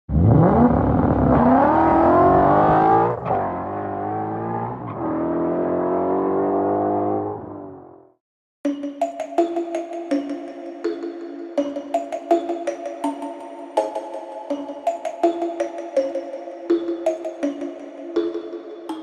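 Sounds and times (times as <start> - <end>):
car engine revving: 0.1 - 8.0.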